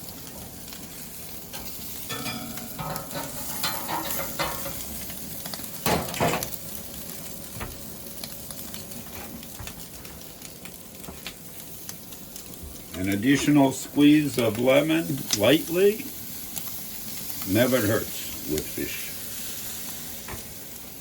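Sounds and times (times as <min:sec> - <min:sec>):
fish sizzling on a grill: 0:00.0 - 0:21.0
utensils scraping a grate: 0:01.5 - 0:04.8.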